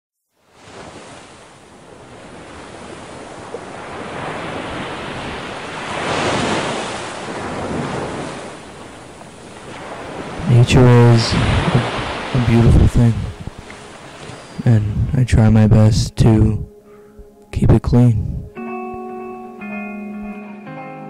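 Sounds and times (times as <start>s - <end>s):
ocean waves washing in: 0.4s - 15.1s
wind: 0.4s - 19.9s.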